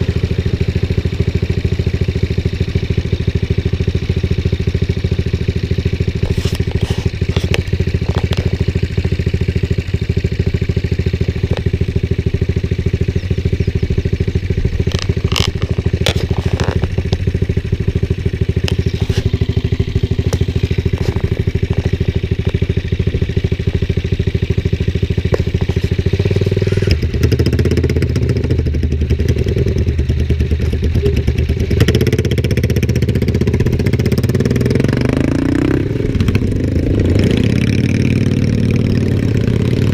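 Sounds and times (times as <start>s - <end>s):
engine revving: 0.0s - 39.9s
motorcycle engines idling: 0.0s - 39.9s
deeper engine note: 9.7s - 39.9s.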